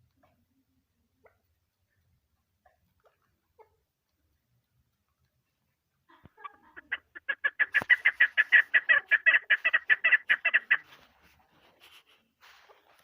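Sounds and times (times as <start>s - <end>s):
partridge chuck calls: 6.1s - 11.0s.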